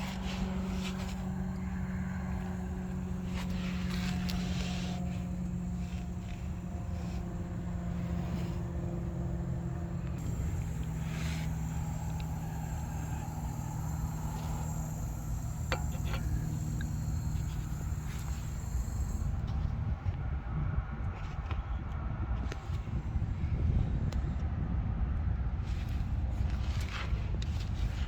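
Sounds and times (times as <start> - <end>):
car engine running with low hum: 0.0 - 28.0.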